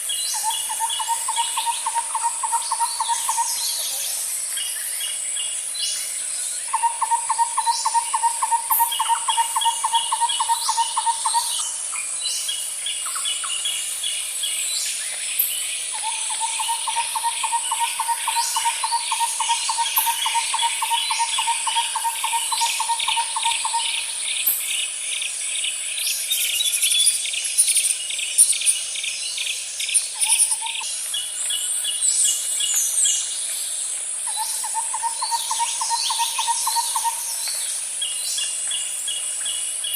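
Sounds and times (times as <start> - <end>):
high insect drone: 0.0 - 39.9
pulsed insect trills: 0.0 - 39.9
bird chirps: 26.2 - 33.3, 34.3 - 39.9.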